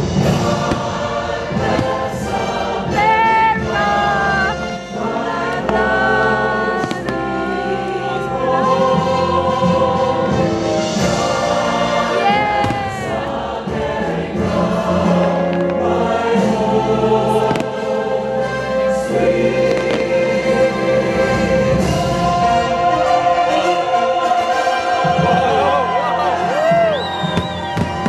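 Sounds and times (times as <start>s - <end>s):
choir singing sustained notes: 0.0s - 28.0s
orchestral music: 0.0s - 28.0s
firework cracks: 0.2s - 2.3s, 5.6s - 7.6s, 17.4s - 18.0s.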